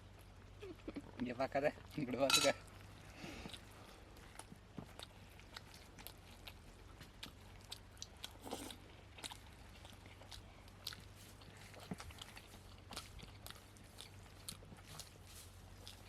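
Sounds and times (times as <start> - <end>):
faint steady hum: 0.0 - 16.0
mouth smacks and chewing: 0.0 - 16.0.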